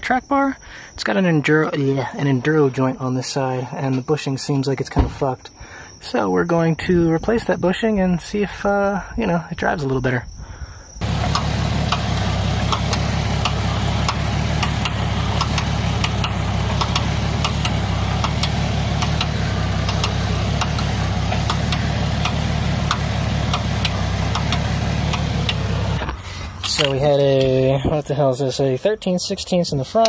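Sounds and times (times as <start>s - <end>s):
motor humming: 11.0s - 26.8s
sharp clicks and ticks: 11.0s - 27.5s.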